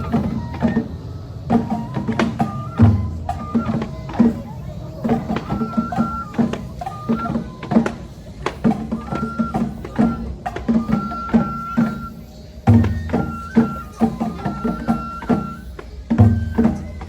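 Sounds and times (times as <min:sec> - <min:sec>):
drums in quick rhythm: 0:00.0 - 0:17.0
high flute playing: 0:00.0 - 0:17.0.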